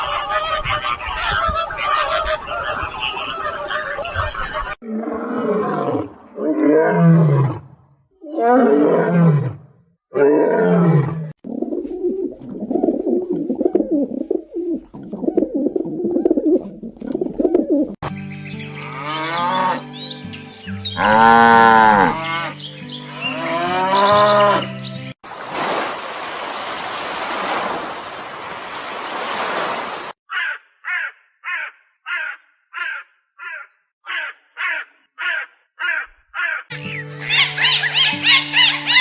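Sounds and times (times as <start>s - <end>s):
big cat roaring: 4.8s - 11.3s
dense high animal calling: 30.3s - 39.0s.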